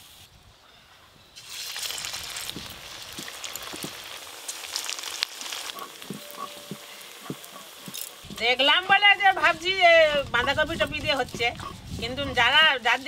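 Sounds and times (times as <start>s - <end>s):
food deep-frying in oil: 1.3s - 13.0s
crackling pops of oil: 2.4s - 8.1s.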